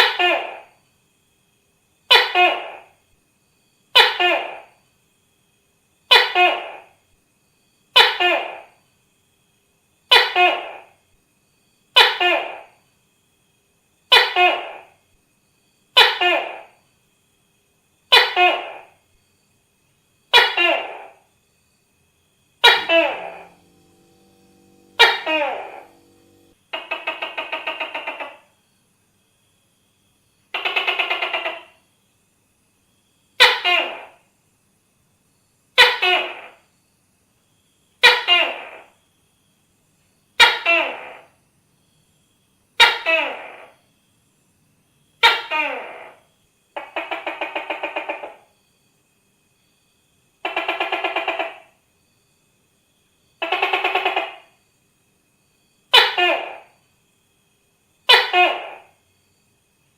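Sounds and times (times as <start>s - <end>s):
gecko call dropping in pitch: 22.6s - 28.5s
gecko rattling trills: 22.6s - 28.5s.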